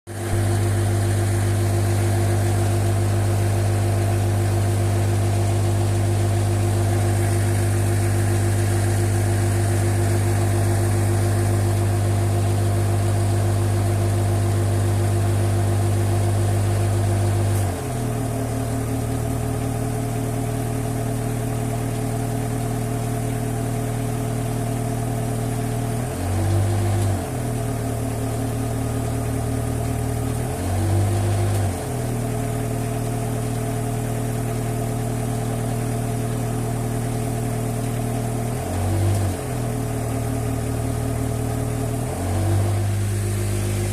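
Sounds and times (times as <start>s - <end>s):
engine running: 0.1s - 43.9s.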